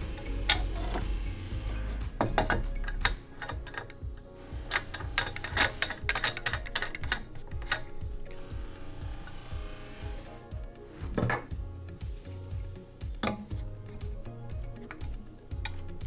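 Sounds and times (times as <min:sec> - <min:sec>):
metal fittings clicking and clinking: 0:02.2 - 0:09.5.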